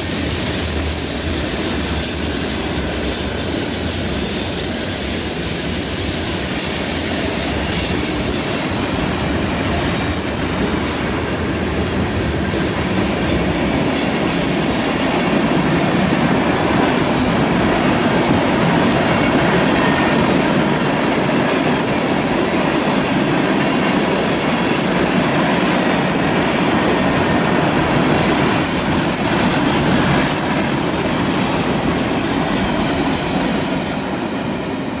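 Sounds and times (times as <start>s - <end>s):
steel wheel squeal: 0.0s - 12.7s, 17.1s - 30.2s
freight train rumble: 0.0s - 35.0s.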